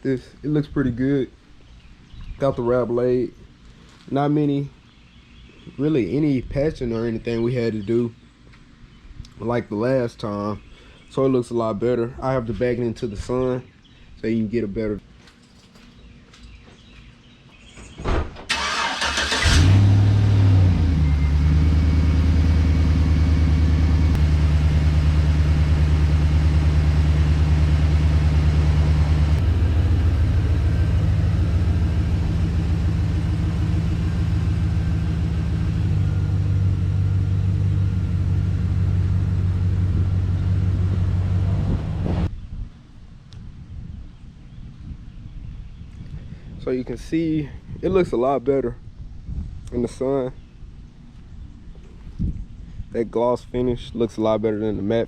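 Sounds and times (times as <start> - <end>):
truck engine starting and idling: 18.5 - 42.3.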